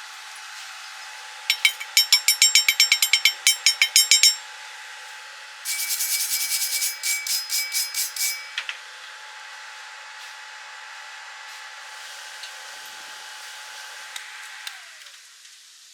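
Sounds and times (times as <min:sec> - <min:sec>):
rapid rhythmic scraping: 0:05.7 - 0:08.6.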